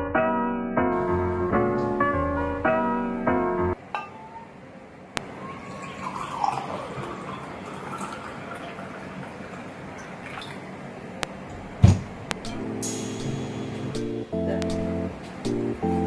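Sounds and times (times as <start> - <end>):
water pouring and dripping: 5.2 - 10.7
loud thump: 11.6 - 12.6.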